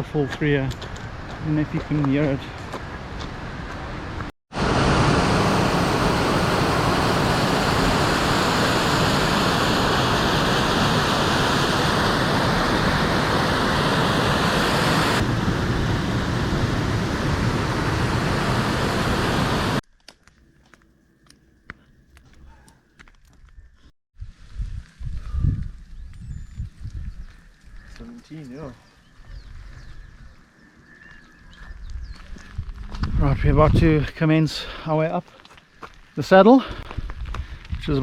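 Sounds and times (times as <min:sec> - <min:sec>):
large waterfall rushing: 0:04.6 - 0:19.8.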